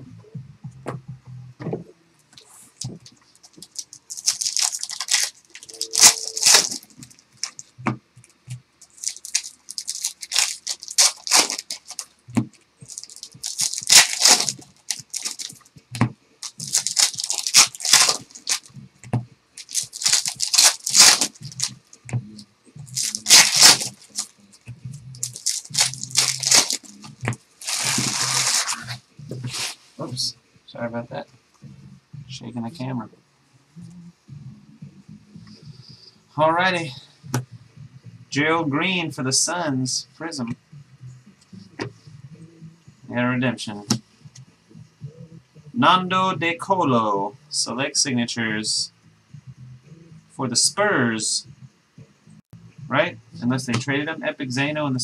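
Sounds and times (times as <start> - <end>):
card wrappers tearing and crinkling: 2.8 - 7.7, 8.8 - 15.7, 16.4 - 18.7, 19.6 - 22.0, 22.9 - 24.3, 25.2 - 29.7.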